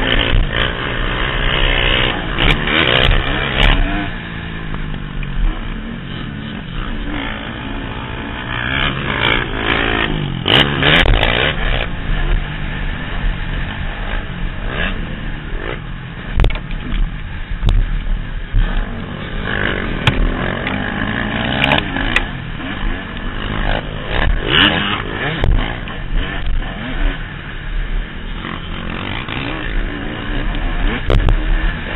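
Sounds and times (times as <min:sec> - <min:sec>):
motocross bike engine revving: 0:00.0 - 0:31.9
wind rumble on microphone: 0:10.2 - 0:31.9
sharp clattering knocks: 0:20.0 - 0:20.8.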